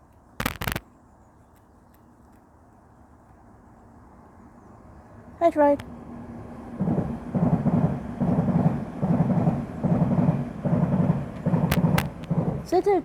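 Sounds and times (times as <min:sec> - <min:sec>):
train rumbling over track: 0:03.7 - 0:13.0.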